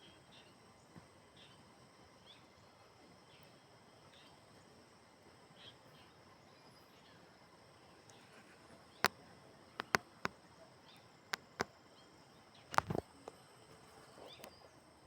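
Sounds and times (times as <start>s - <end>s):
sharp clicks: 9.8s - 10.4s, 12.7s - 13.0s.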